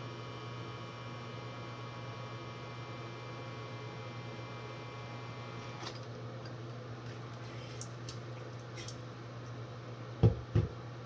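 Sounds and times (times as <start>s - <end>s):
plastic device knocks: 10.2s - 10.8s.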